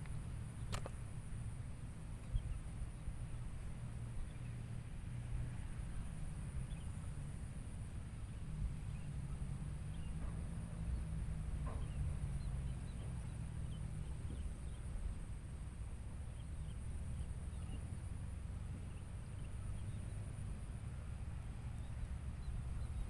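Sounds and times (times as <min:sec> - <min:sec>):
faint bird chirps: 0:08.3 - 0:15.3, 0:16.1 - 0:18.1, 0:21.6 - 0:23.0.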